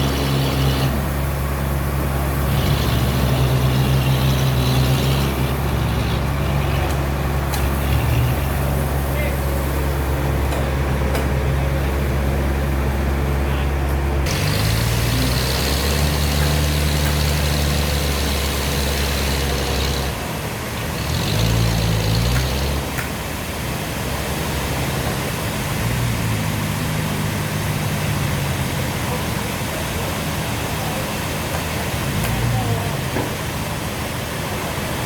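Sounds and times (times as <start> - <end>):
sawmill engine drone: 0.0 - 35.0.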